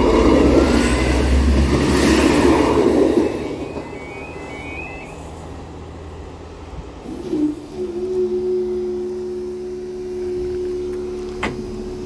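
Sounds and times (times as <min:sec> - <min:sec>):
train passing: 0:00.0 - 0:12.0
two-tone crossing alarm: 0:02.0 - 0:05.6.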